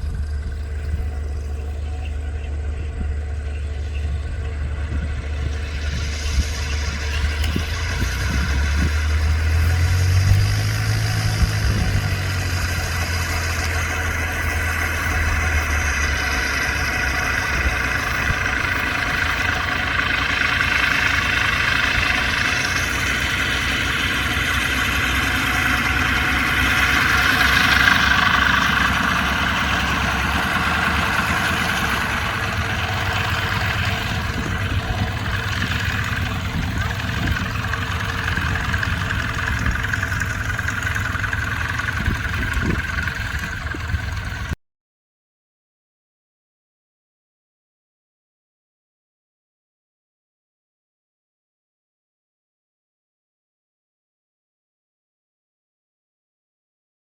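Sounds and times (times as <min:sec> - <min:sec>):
radial engine running: 0:00.0 - 0:44.6.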